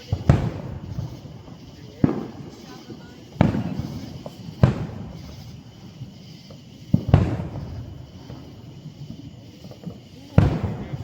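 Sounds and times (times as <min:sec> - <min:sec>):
fireworks booming: 0:00.0 - 0:11.0
fireworks crack: 0:00.0 - 0:11.0.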